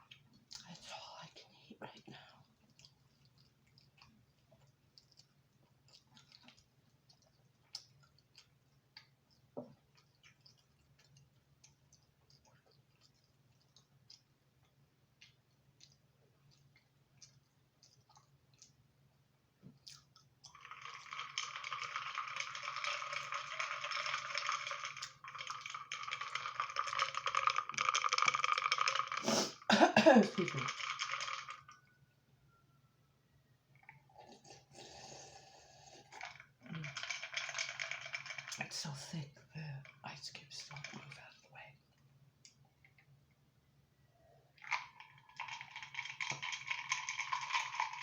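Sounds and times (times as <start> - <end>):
wet mouth clicks chewing: 2.6 - 18.8
loud drinking sound: 20.6 - 31.5, 33.9 - 38.5.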